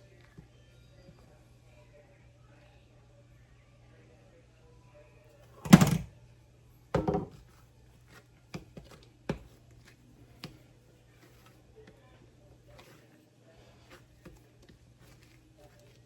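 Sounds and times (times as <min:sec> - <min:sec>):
heavy thumps on kitchen counter: 0:05.6 - 0:06.1, 0:07.0 - 0:07.4.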